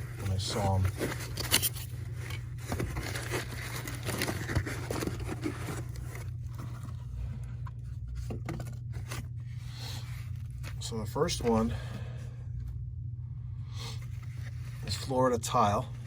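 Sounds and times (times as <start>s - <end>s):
packaging rustling and scraping: 0.0s - 11.7s
low hum: 0.0s - 16.0s.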